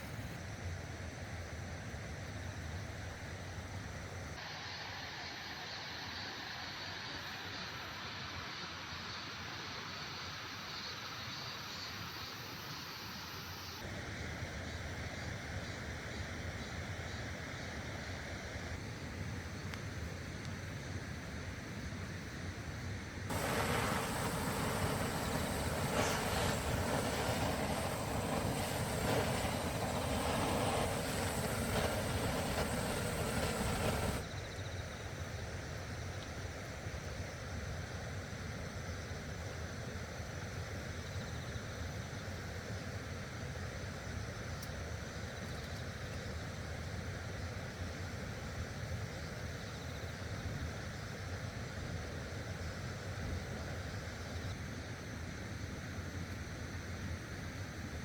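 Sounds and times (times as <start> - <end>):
stream water rushing: 23.3 - 34.2.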